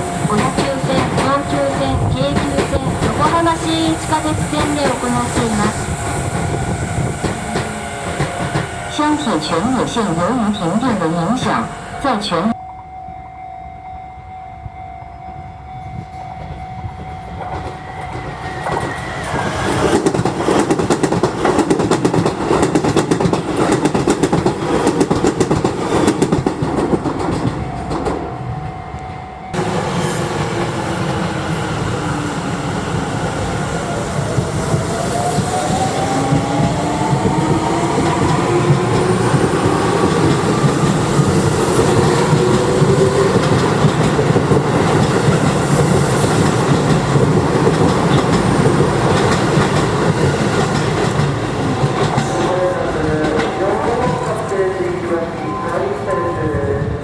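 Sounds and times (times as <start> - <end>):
train traction motor whine: 0.0 - 12.6
train wheels clattering over rail joints: 17.4 - 28.2, 36.3 - 54.2.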